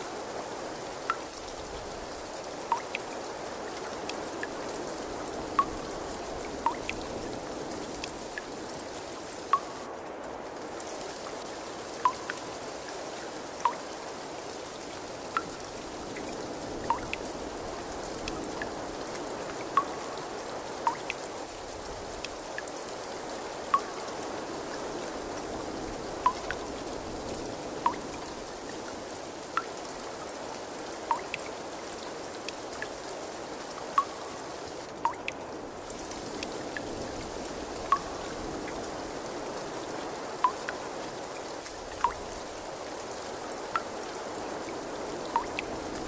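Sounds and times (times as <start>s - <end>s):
running water: 0.0s - 46.0s
water drops plinking: 2.7s - 3.1s, 6.6s - 7.0s, 9.5s - 9.8s, 12.0s - 12.4s, 13.6s - 13.8s, 16.9s - 17.2s, 20.8s - 21.2s, 23.7s - 23.9s, 26.2s - 26.7s, 31.1s - 31.5s, 34.0s - 34.2s, 35.0s - 35.4s, 37.9s - 38.1s, 45.4s - 45.7s.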